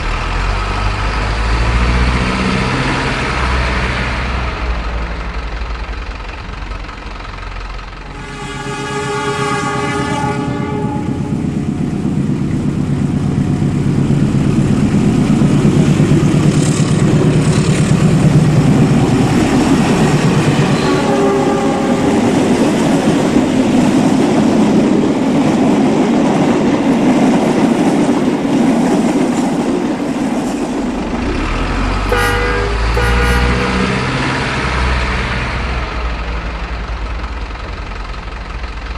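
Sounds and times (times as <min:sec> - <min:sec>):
train rumbling and clattering past: 0:00.0 - 0:38.9
train horn: 0:08.0 - 0:11.4, 0:20.6 - 0:22.6, 0:32.1 - 0:34.4.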